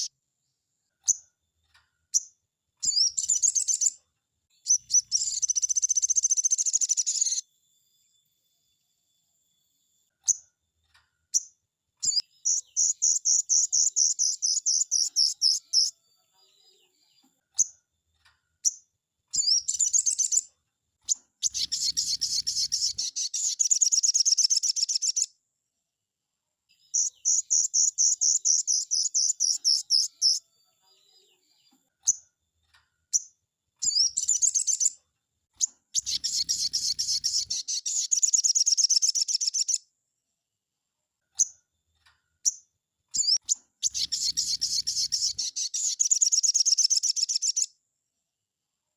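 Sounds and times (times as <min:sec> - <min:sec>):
bird chattering song: 0:02.1 - 0:04.0, 0:04.6 - 0:07.4, 0:11.3 - 0:16.0, 0:18.6 - 0:25.3, 0:26.9 - 0:30.4, 0:33.1 - 0:35.0, 0:35.6 - 0:39.8, 0:42.4 - 0:47.7.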